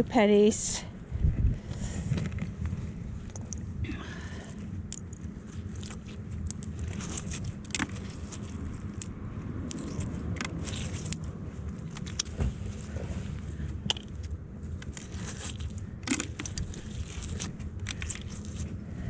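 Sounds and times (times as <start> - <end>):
steady low rumble: 0.0 - 19.0
metal objects clinking: 4.8 - 9.1, 9.7 - 12.3, 13.9 - 18.6.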